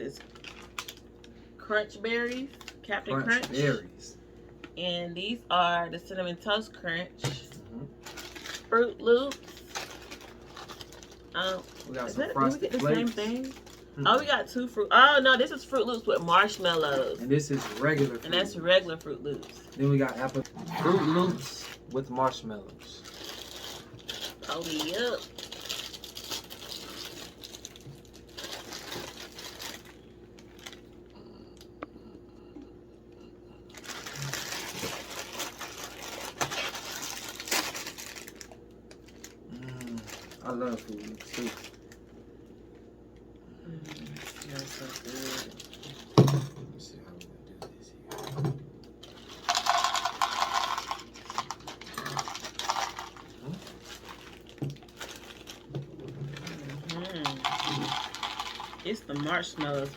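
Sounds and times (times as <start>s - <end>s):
packaging crinkling: 0.0s - 1.4s, 8.0s - 14.3s, 15.5s - 31.7s, 33.7s - 42.8s, 43.8s - 46.3s, 48.9s - 59.9s
cereal pouring into bowl: 49.2s - 53.2s, 57.2s - 59.2s.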